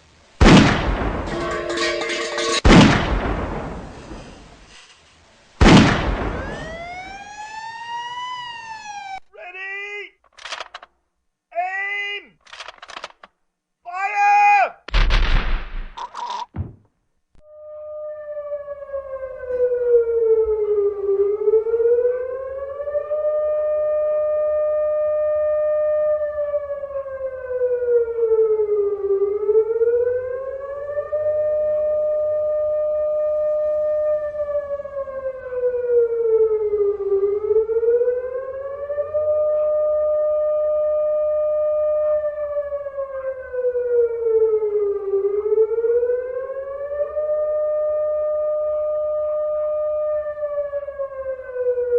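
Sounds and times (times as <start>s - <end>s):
air-raid siren wailing: 6.2s - 10.1s, 17.4s - 51.9s.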